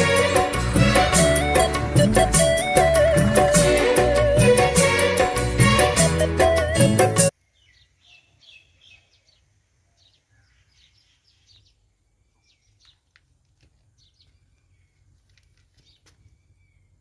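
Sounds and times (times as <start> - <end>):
music: 0.0 - 7.3
faint bird chirps: 7.4 - 13.1.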